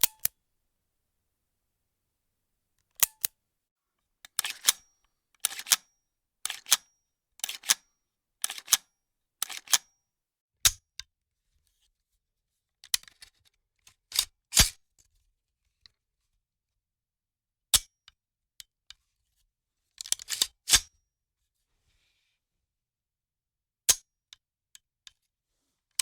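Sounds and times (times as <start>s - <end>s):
weapon mechanism metallic clicks: 3.0s - 3.3s, 4.3s - 4.8s, 5.4s - 5.8s, 6.5s - 6.8s, 7.4s - 7.8s, 8.4s - 8.8s, 9.4s - 9.8s.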